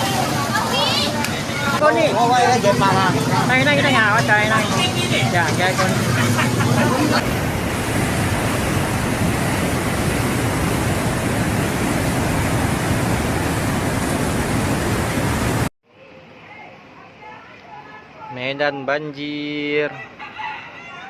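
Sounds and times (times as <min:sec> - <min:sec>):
floodwater rushing: 0:00.0 - 0:15.7.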